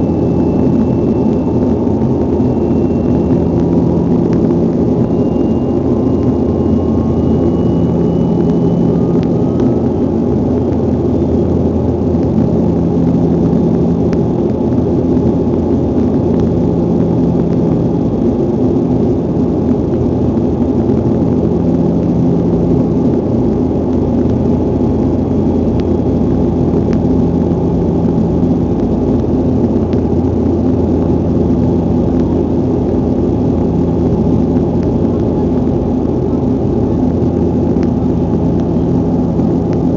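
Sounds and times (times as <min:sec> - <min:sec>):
faint rising tone: 0:00.0 - 0:11.7
airliner cabin engine drone: 0:00.0 - 0:39.9
low hum: 0:00.0 - 0:39.9.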